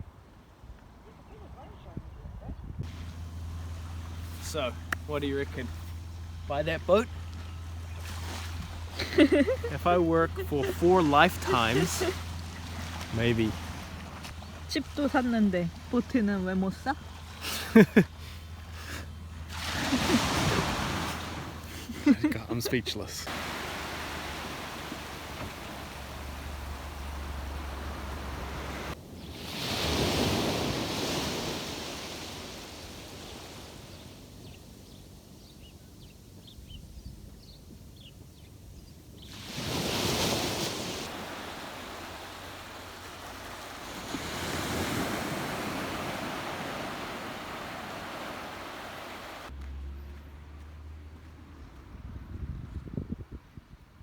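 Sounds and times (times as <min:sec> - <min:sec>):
wind: 0:00.0 - 0:54.0
waves breaking on shore: 0:02.8 - 0:34.9, 0:39.2 - 0:49.5.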